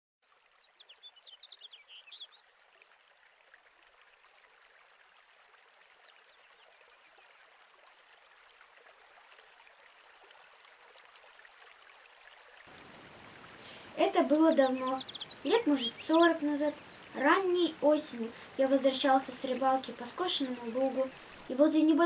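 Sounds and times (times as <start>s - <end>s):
soft steady hiss: 0.3s - 22.0s
bird chirps: 0.6s - 2.4s, 14.5s - 16.2s.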